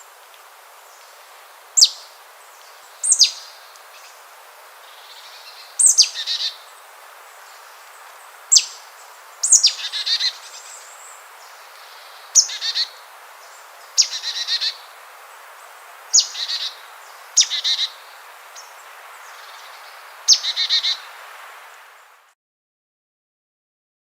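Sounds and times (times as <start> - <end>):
faint hiss: 0.0 - 22.4
bird singing repeated phrase: 11.8 - 13.0, 13.9 - 14.8, 16.2 - 18.0, 19.3 - 21.0.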